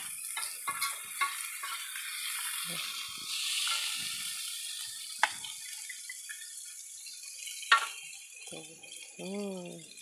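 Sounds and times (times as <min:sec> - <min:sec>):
spatula knocking pan: 0:00.0 - 0:01.9
food sizzling in a wok: 0:00.0 - 0:10.0.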